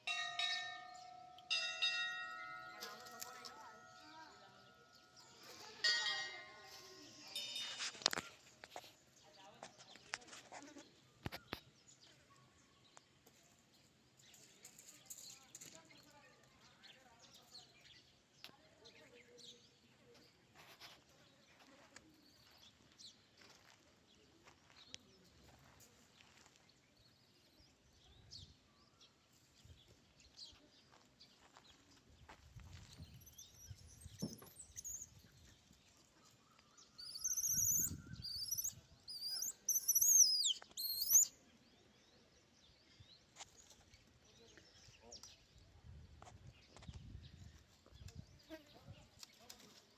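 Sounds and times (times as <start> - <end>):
bird chirping sliding notes: 37.0 - 41.2.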